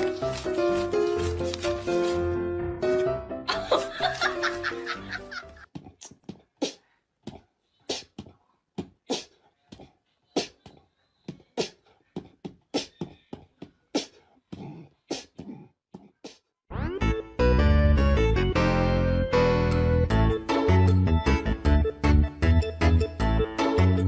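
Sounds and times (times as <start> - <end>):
music with held notes: 16.7 - 24.0.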